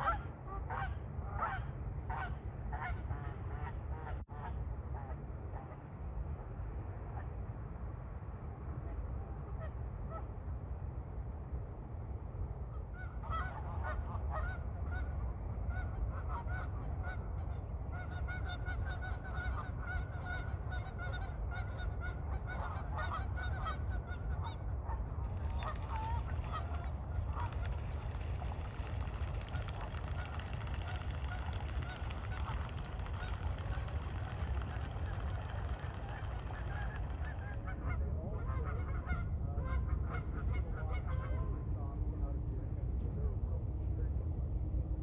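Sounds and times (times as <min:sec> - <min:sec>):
steady low rumble: 0:00.0 - 0:45.0
geese honking: 0:13.0 - 0:41.6.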